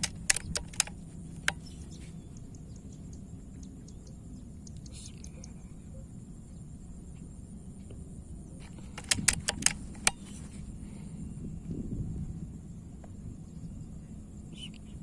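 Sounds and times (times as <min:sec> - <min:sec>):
air rifle metallic clicks: 0:00.0 - 0:01.7, 0:08.6 - 0:10.6
low outdoor rumble: 0:00.0 - 0:15.0.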